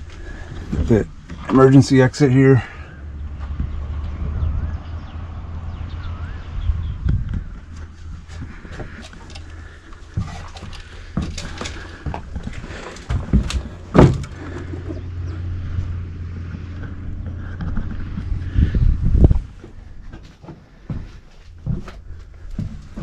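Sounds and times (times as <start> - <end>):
clunks and knocks of handling fittings: 8.7 - 15.0.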